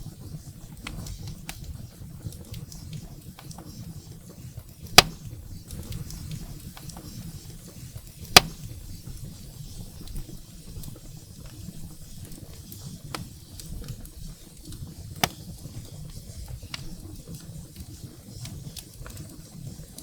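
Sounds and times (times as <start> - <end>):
fire crackling in a fireplace: 0.0 - 20.0
loud sharp wood pops: 4.9 - 5.4, 8.3 - 8.8, 15.2 - 15.5.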